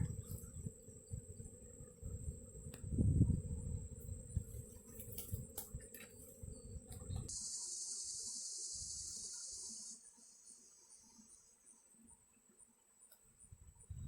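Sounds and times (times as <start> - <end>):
wind buffeting microphone: 0.0 - 5.6, 13.6 - 14.0
insect trill: 0.0 - 14.0
loud high insect buzz: 0.0 - 14.0.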